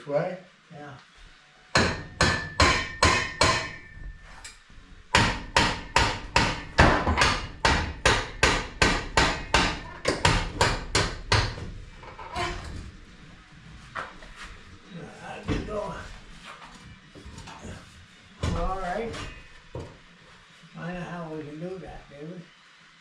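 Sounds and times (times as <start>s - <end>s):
hammer striking steel pipe: 1.8s - 4.1s, 5.2s - 11.6s.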